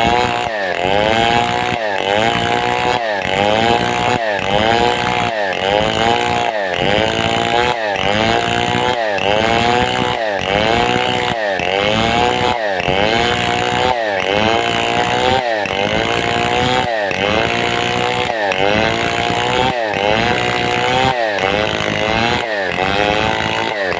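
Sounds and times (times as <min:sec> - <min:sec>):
chainsaw cutting log at full throttle: 0:00.0 - 0:23.9.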